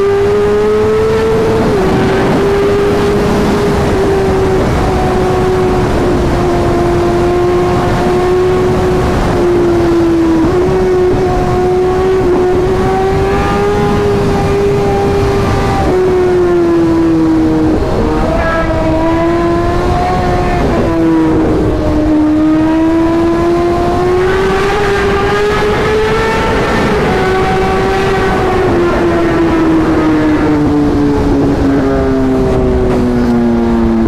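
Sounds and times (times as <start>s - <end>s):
motorcycle engine at high revs: 0.0s - 34.0s.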